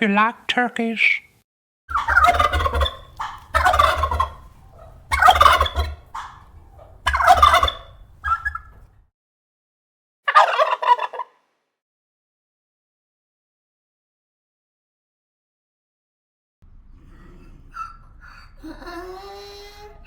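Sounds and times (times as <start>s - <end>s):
turkey short calls: 1.9s - 8.8s, 10.3s - 11.3s
turkey gobbling: 1.9s - 9.0s, 10.3s - 11.4s.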